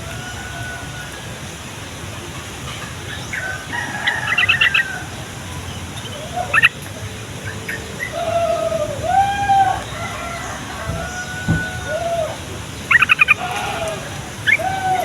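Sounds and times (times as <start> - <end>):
bird chirping: 12.7 - 13.4.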